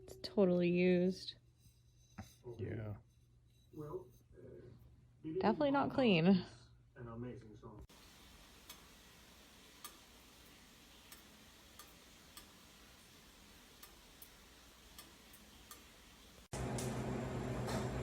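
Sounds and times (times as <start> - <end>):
faint hiss: 7.8 - 16.5.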